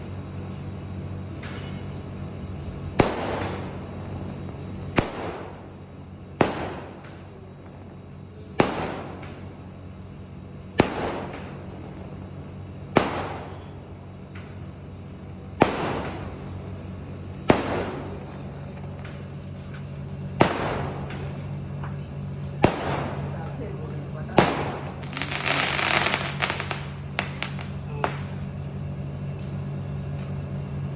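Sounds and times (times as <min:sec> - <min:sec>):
low steady hum: 0:00.0 - 0:30.9
fireworks bangs: 0:03.0 - 0:04.0, 0:04.9 - 0:05.8, 0:06.4 - 0:07.8, 0:08.5 - 0:09.6, 0:10.8 - 0:12.1, 0:12.9 - 0:14.6, 0:15.6 - 0:28.4.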